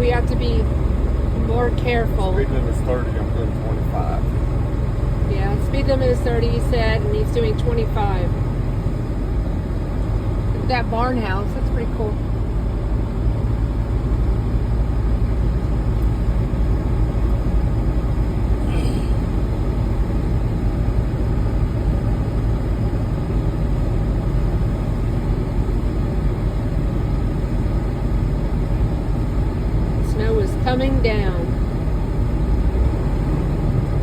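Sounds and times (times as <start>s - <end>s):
truck engine and road drone: 0.0s - 34.0s.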